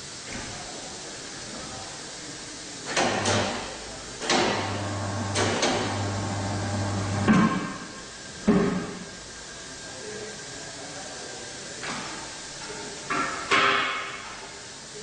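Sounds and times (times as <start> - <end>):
tyre changing machine motor hum: 4.3 - 7.6.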